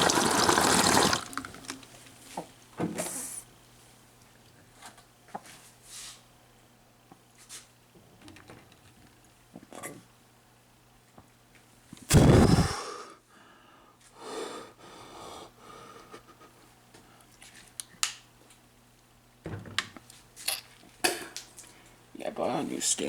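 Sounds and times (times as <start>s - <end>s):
person breathing hard: 12.1s - 16.6s.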